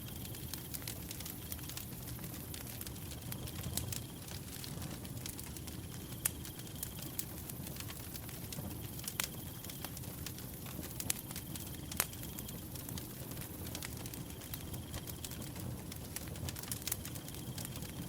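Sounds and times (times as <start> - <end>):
wood fire crackling: 0.0 - 18.0
cricket trill: 16.8 - 18.0.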